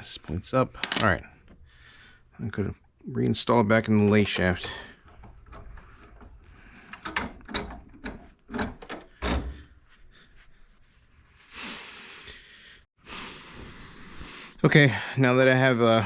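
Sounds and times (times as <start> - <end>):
metal parts clicking and knocking: 0.8 - 1.2, 4.0 - 9.5.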